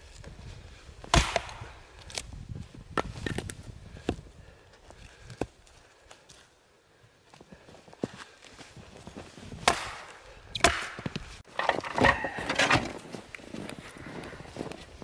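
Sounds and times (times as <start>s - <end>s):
axe chopping firewood: 1.0s - 2.2s, 9.6s - 13.0s.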